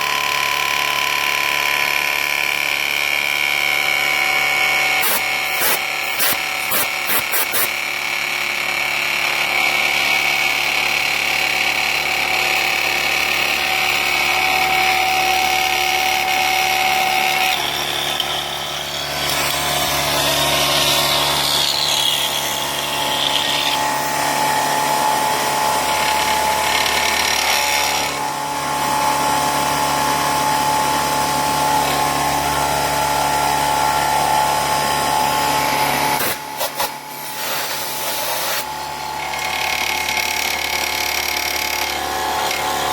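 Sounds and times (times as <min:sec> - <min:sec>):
mill cutter whining: 0:00.0 - 0:42.9.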